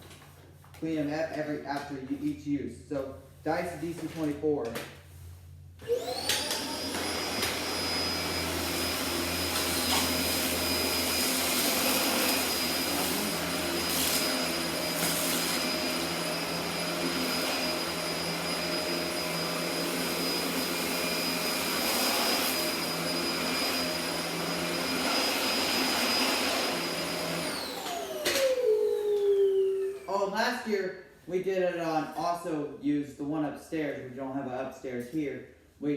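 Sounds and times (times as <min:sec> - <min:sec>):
vacuum cleaner running: 0:05.8 - 0:30.4.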